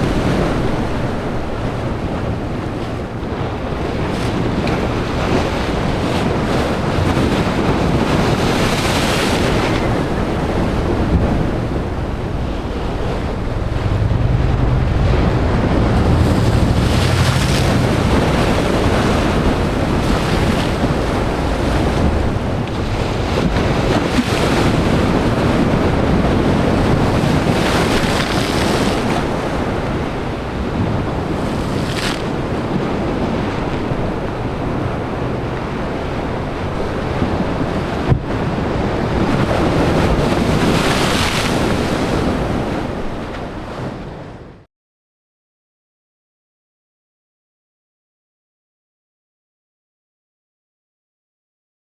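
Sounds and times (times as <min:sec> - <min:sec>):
waves crashing on rocks: 0:00.0 - 0:44.0
deep low rumble: 0:09.9 - 0:23.8.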